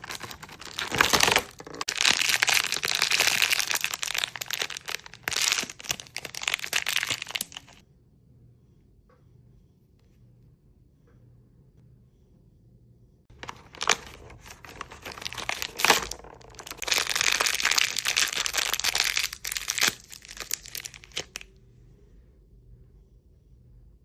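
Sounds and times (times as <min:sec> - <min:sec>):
plastic packaging crinkling and tearing: 0:00.0 - 0:07.8, 0:13.3 - 0:21.4.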